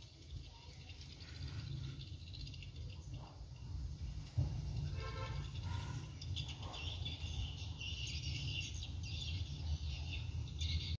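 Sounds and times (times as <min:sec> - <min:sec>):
small birds chirping: 0:05.3 - 0:11.0.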